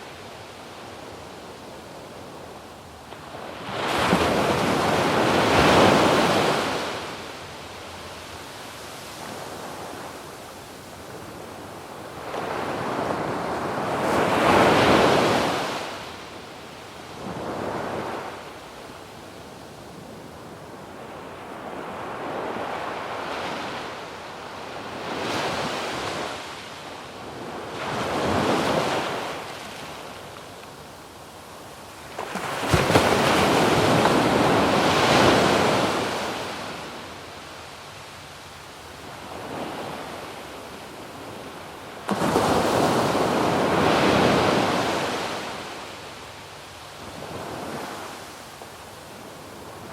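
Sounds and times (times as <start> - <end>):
ocean waves breaking on beach: 0.0 - 16.4, 17.0 - 49.9.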